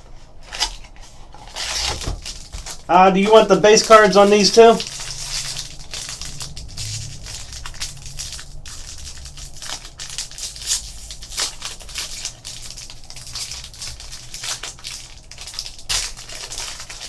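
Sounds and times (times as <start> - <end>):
foil wrapper crinkling: 0.0 - 17.0
cards shuffling: 0.5 - 6.3.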